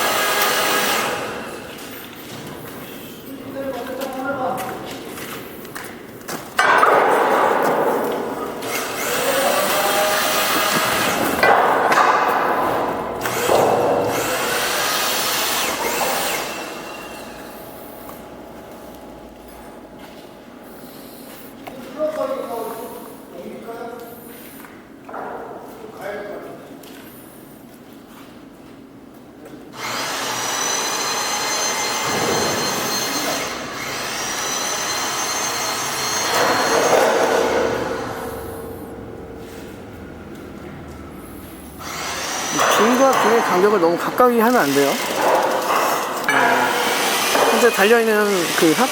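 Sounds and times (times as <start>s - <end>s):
electric hoist motor whining: 0.0s - 2.2s, 6.6s - 20.2s, 29.8s - 48.9s.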